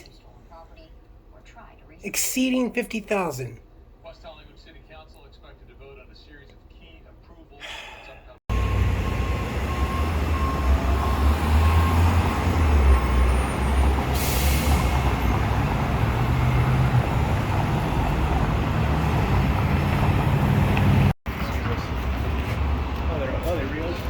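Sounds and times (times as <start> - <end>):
heavy vehicle engine rumbling: 8.5 - 24.0
air brake hiss: 14.1 - 15.1.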